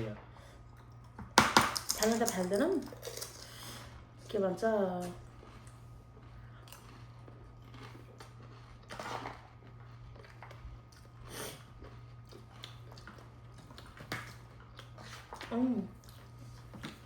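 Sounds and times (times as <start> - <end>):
crunchy chewing: 5.0 - 17.0.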